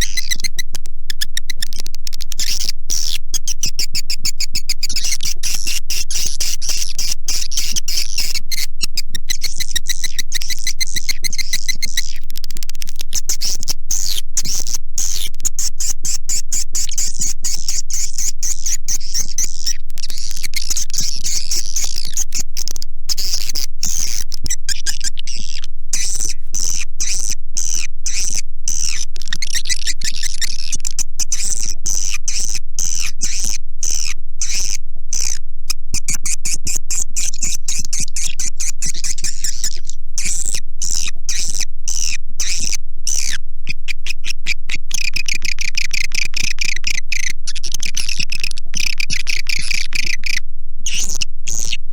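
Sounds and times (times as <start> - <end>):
high twittering bird chirps: 0.0 - 12.3, 13.1 - 35.4, 44.9 - 51.8
lower trilling bird chirps: 0.0 - 12.4, 13.1 - 35.4, 36.0 - 51.8.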